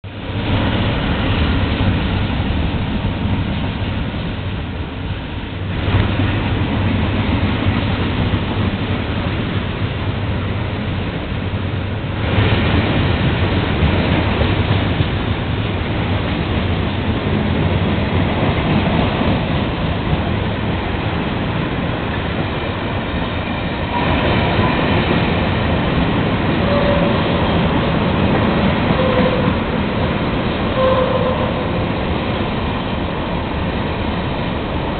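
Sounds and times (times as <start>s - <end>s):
freight train rolling past: 0.0s - 34.9s
train wheel squeals: 26.5s - 27.8s, 28.8s - 32.0s.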